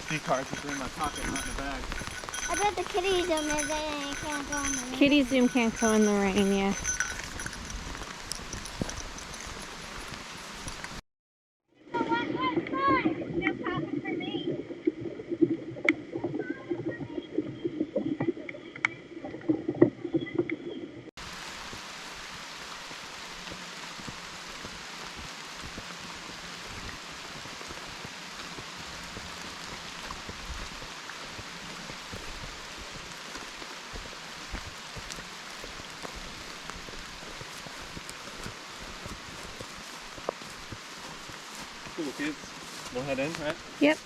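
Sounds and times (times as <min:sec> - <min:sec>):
rain falling in woodland: 0:00.0 - 0:11.0, 0:21.2 - 0:44.0.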